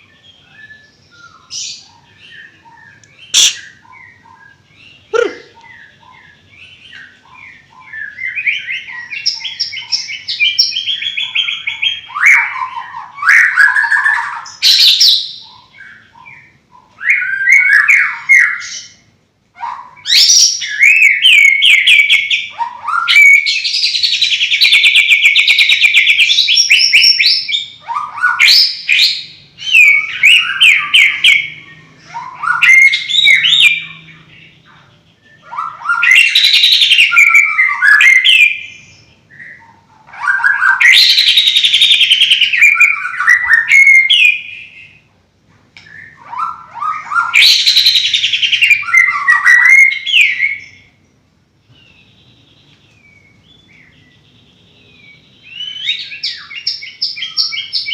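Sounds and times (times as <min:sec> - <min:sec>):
songbird trills and whistles: 0:00.0 - 0:45.1, 0:45.8 - 0:51.0, 0:51.7 - 0:57.9.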